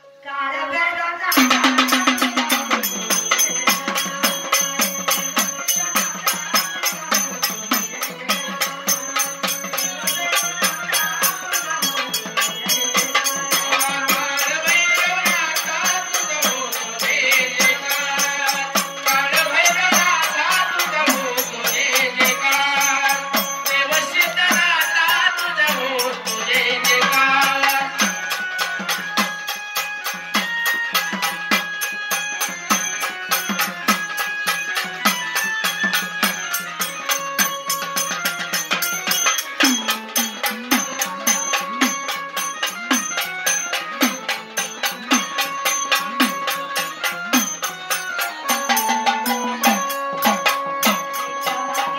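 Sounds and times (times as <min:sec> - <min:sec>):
woman singing devotional song: 0:00.0 - 0:51.9
hand percussion with jingles: 0:01.3 - 0:51.9.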